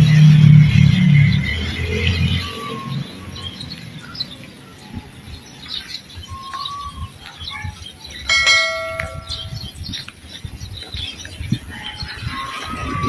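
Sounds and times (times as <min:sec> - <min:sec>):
birds chirping: 0:00.0 - 0:13.0
ringing tone: 0:08.3 - 0:09.6.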